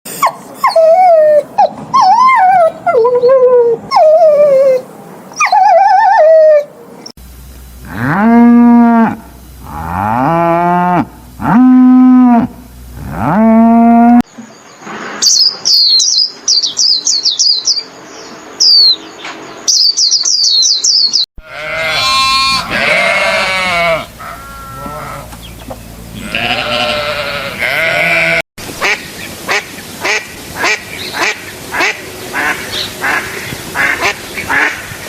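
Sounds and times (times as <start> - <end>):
cattle mooing: 7.8 - 14.2, 21.4 - 25.4, 26.1 - 28.4.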